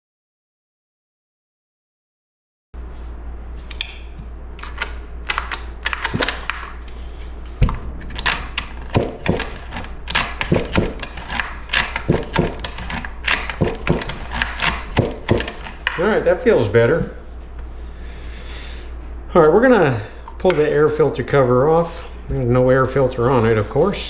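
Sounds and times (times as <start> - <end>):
steady low hum: 2.8 - 24.0
metal parts clicking and clinking: 3.7 - 16.1.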